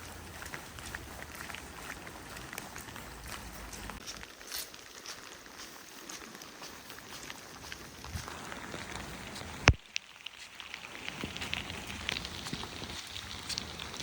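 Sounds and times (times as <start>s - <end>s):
rain pattering: 0.0s - 14.0s.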